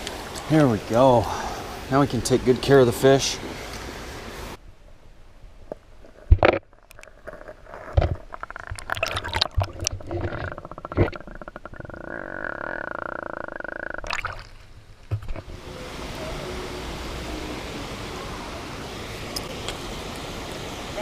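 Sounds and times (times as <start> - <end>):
water gurgling and sloshing: 6.6 - 18.1.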